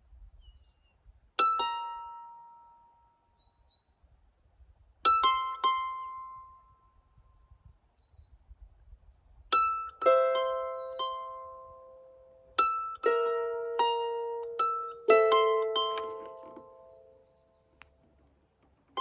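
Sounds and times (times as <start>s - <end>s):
plucked string notes: 1.4s - 3.0s, 5.1s - 6.7s, 9.6s - 19.0s.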